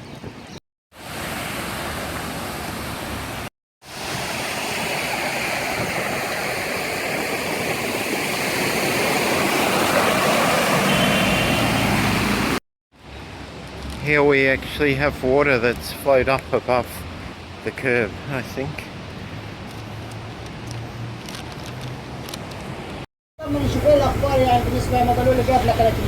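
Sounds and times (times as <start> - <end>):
floodwater rushing: 0.9 - 12.6.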